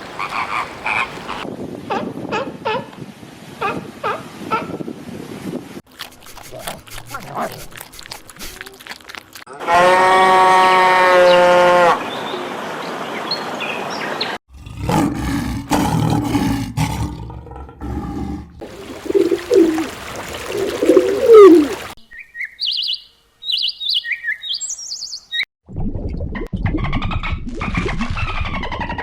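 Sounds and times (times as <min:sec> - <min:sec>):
low rough animal calls: 0:16.9 - 0:21.9
high chirping calls: 0:18.8 - 0:25.5.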